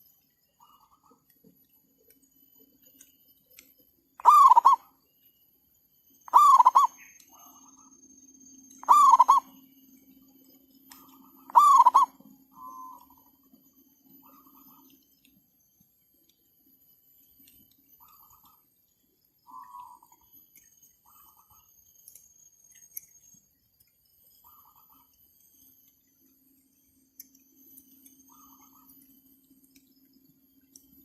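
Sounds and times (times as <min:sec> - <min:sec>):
doves cooing: 0:04.2 - 0:04.9, 0:06.3 - 0:07.0, 0:08.8 - 0:09.5, 0:11.3 - 0:13.2
faint answering dove calls: 0:04.2 - 0:04.9, 0:06.3 - 0:07.0, 0:08.8 - 0:09.6, 0:11.3 - 0:13.2.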